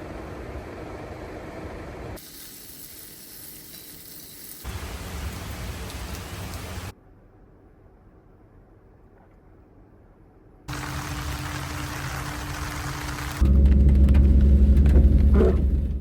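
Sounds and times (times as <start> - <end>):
rain hissing: 2.2 - 6.9, 10.7 - 15.8
low rumble: 9.9 - 16.0.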